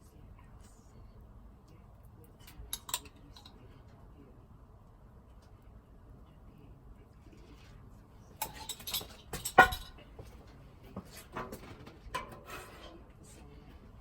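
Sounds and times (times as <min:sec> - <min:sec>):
kitchen utensils and dishes clinking: 0:02.4 - 0:03.5, 0:08.4 - 0:10.0.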